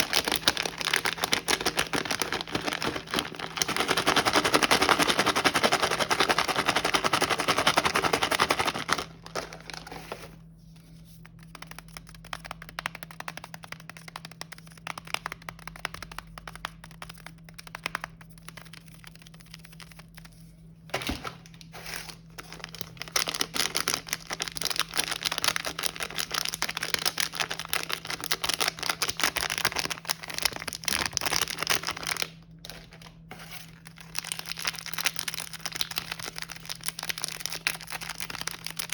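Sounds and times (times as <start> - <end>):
plastic wrappers crinkling: 0.0 - 10.4, 21.1 - 38.9
scattered clicks and taps: 11.3 - 19.9.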